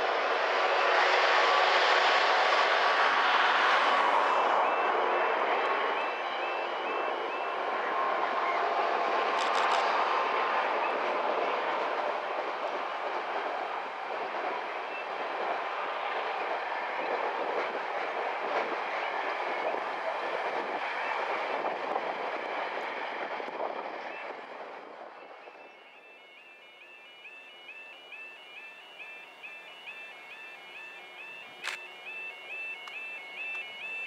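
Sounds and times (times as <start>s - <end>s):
freight train wheels rumbling: 0.0s - 34.0s.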